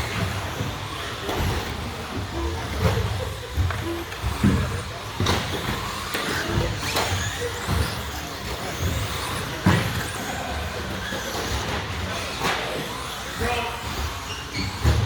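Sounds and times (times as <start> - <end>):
toy trucks clacking and thudding: 0.0 - 15.0.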